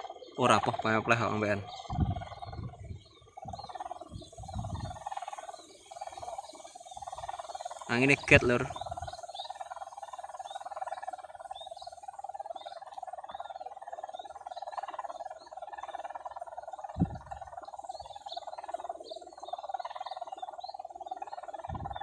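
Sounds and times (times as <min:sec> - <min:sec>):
kite hummer buzzing drone: 0:00.0 - 0:12.2, 0:16.9 - 0:19.6, 0:21.7 - 0:22.0
low thump: 0:17.0 - 0:17.4.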